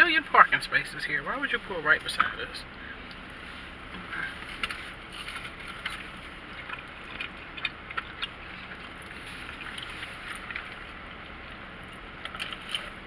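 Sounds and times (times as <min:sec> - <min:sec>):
car interior background noise: 0:00.0 - 0:13.0.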